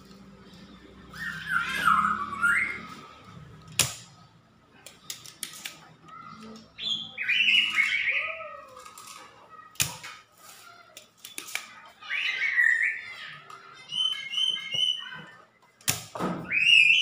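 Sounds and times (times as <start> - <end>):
bird squawking: 1.1 - 3.1, 11.9 - 15.2.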